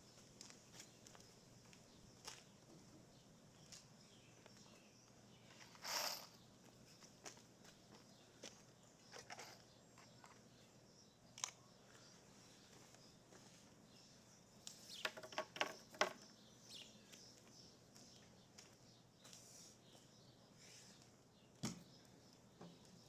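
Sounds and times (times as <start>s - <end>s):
tools clicking and knocking on wood: 9.1s - 10.5s, 14.7s - 16.4s.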